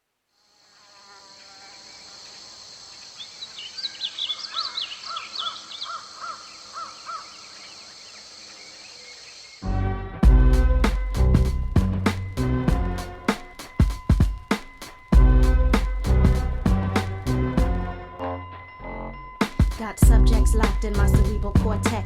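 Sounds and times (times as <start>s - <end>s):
insects droning: 0.0s - 9.7s, 10.6s - 22.0s
bird chirping: 1.9s - 9.6s
music with heavy beat: 10.2s - 17.9s, 19.4s - 22.0s.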